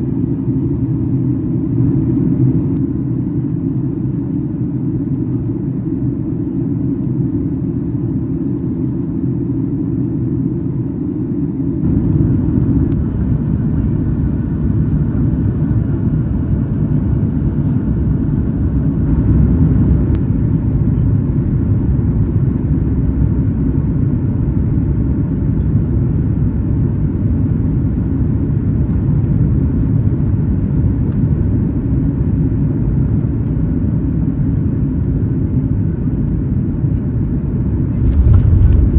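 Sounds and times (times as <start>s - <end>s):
aircraft engine and airflow rumble: 0.0s - 38.9s
thin high whine: 13.0s - 15.8s.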